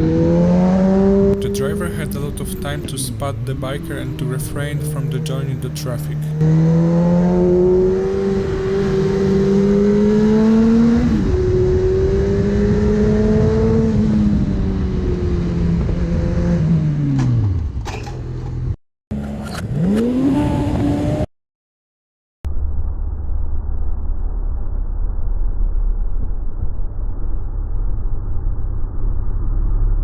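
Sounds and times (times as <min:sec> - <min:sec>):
engine revving: 0:00.0 - 0:18.2, 0:19.1 - 0:21.3
motorcycle engine accelerating: 0:00.0 - 0:21.3.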